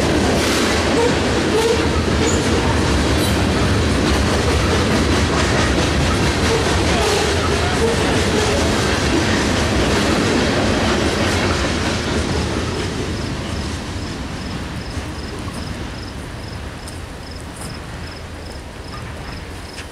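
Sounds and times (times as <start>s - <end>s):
freight train rumble and clatter: 0.0s - 19.9s
cricket chirping: 13.2s - 19.9s.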